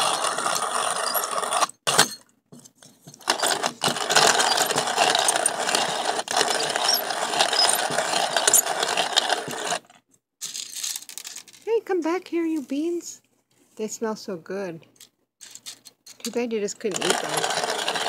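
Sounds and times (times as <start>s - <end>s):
hand coffee grinder crunching beans: 0.0s - 2.0s, 3.2s - 9.9s, 16.3s - 18.0s.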